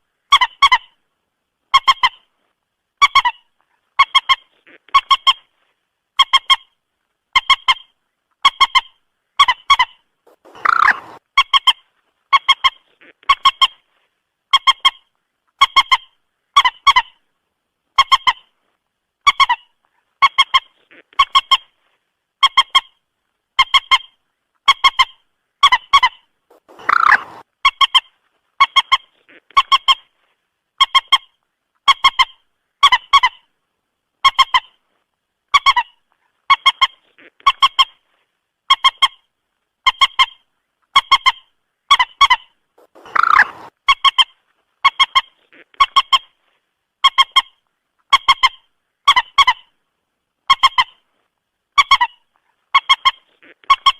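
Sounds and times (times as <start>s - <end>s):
moorhen clucking calls: 7.4s - 13.9s, 23.6s - 30.2s, 39.8s - 46.4s
harsh moorhen call: 8.5s - 11.7s, 25.6s - 28.0s, 41.9s - 44.2s.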